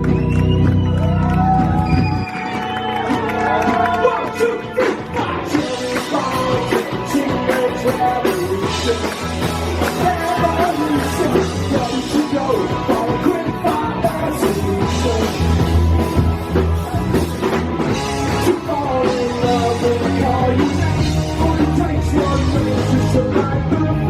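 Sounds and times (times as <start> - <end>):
live rock band playing: 0.0 - 24.0
person singing: 3.8 - 17.0, 18.3 - 24.0.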